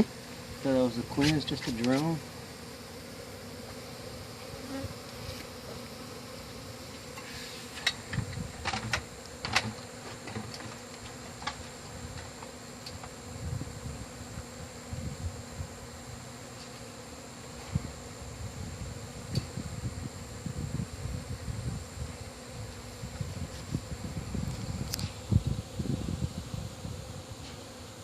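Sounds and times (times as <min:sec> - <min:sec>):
bee colony buzzing: 0:00.0 - 0:28.0
sharp clicks and knocks: 0:07.8 - 0:11.6.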